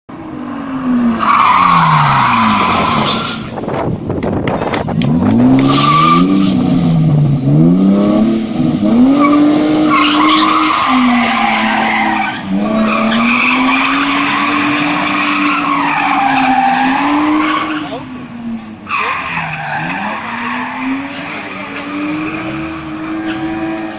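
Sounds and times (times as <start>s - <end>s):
car engine revving: 0.3s - 23.9s
clatter of sharp clicks: 4.2s - 5.7s.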